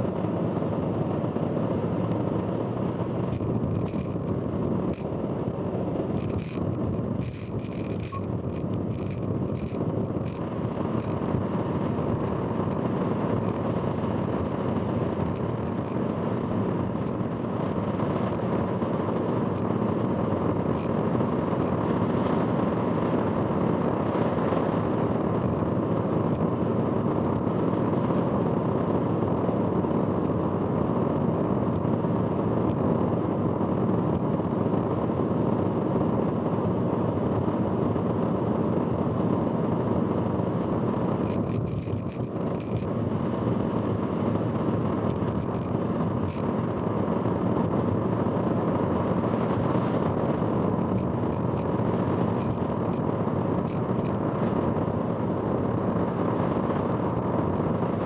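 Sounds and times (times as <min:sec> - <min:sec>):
car road and wind noise: 0:00.0 - 0:58.0
sharp ticks: 0:03.2 - 0:05.6, 0:06.2 - 0:10.4, 0:41.2 - 0:42.9, 0:45.1 - 0:46.4, 0:50.7 - 0:54.3.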